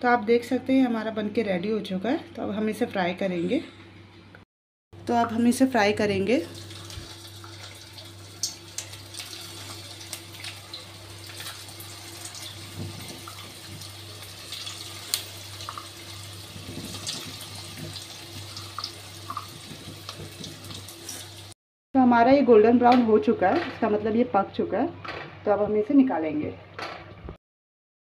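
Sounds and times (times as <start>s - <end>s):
patties frying in hot oil: 5.4s - 21.6s.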